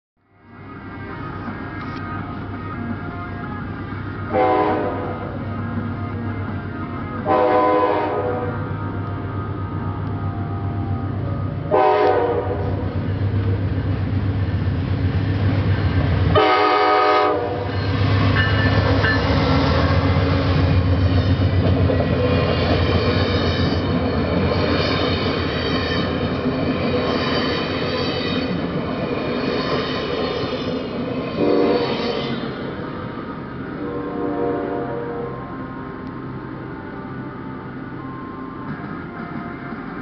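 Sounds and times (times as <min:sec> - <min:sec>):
train rumbling on rails: 0:00.3 - 0:40.0
train horn blasts: 0:04.3 - 0:13.0, 0:16.3 - 0:19.2, 0:31.3 - 0:32.6, 0:33.8 - 0:35.6.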